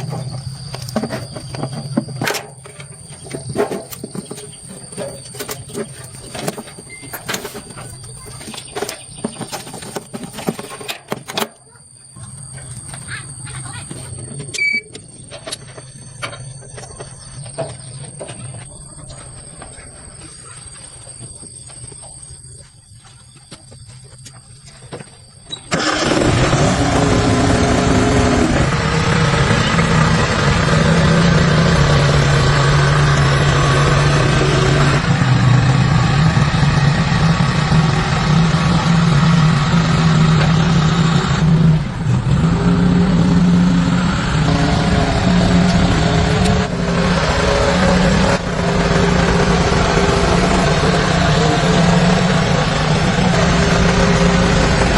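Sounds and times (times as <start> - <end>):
car engine running: 0.0 - 14.5, 25.8 - 54.9.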